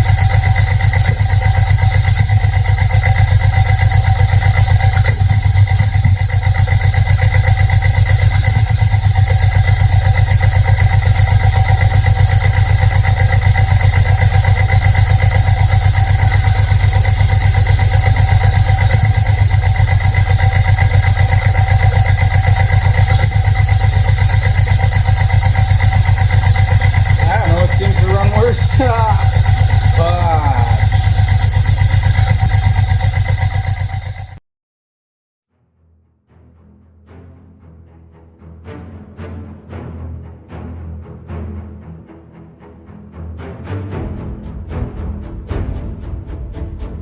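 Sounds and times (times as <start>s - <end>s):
pickup engine idling: 0.0s - 34.4s.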